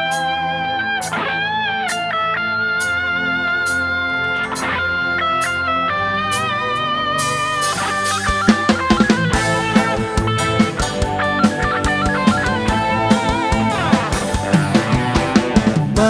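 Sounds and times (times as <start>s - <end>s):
lead guitar melody: 0.0s - 16.0s
bass guitar: 3.4s - 16.0s
drum kit beat: 6.2s - 16.0s.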